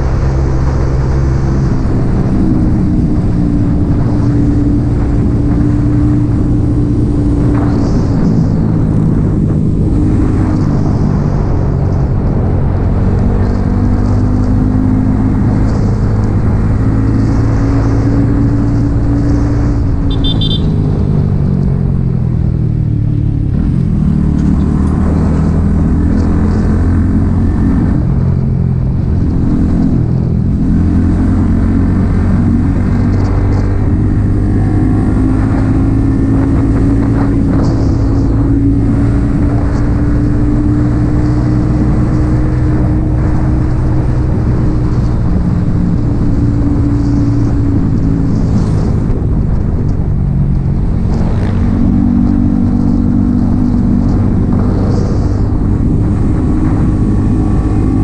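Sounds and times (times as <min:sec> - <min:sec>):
motorcycle engine running: 0:14.0 - 0:58.0.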